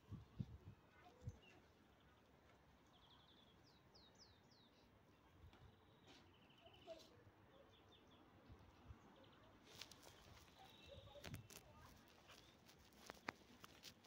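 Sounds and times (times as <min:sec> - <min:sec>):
bird chirps: 0:09.2 - 0:11.6
small bird trills: 0:09.6 - 0:14.0.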